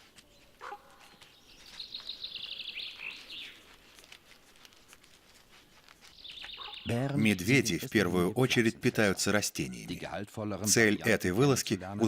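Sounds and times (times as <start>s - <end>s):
songbird trilling: 1.8s - 3.6s, 6.2s - 7.0s.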